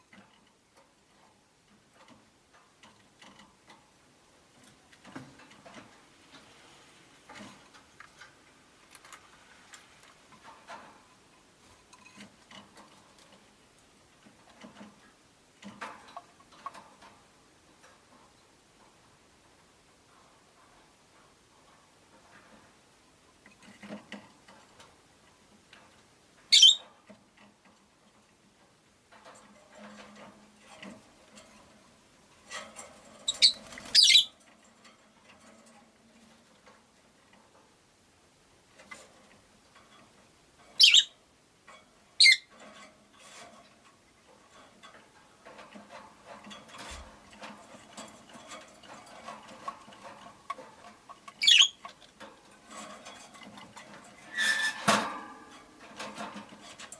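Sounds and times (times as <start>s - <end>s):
clicks and rustling: 7.2s - 37.8s, 41.6s - 56.9s
lovebirds chirping: 26.5s - 26.8s, 33.3s - 34.3s, 40.8s - 41.2s, 42.2s - 42.5s, 51.4s - 51.8s.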